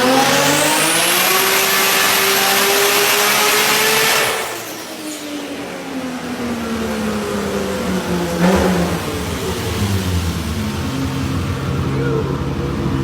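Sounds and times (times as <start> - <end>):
car engine under load: 0.0 - 13.0
loud rushing noise: 5.6 - 13.0.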